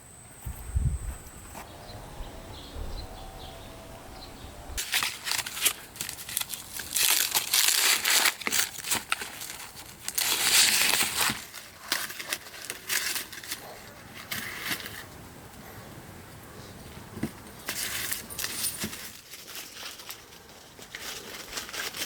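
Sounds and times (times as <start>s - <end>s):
corn husks crinkling and tearing: 4.8s - 15.2s, 16.8s - 22.0s.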